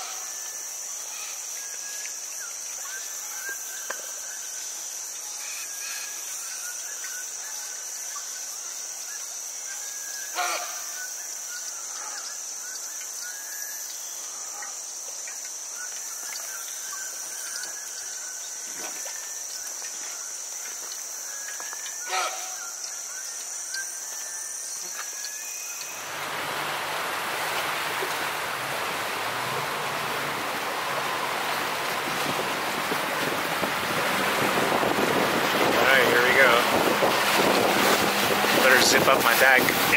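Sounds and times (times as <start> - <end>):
insects droning: 0.0 - 39.9
rushing water and wind: 0.0 - 39.9
short animal calls: 10.3 - 10.9, 22.0 - 22.6
motorboat engine hum: 25.1 - 39.9.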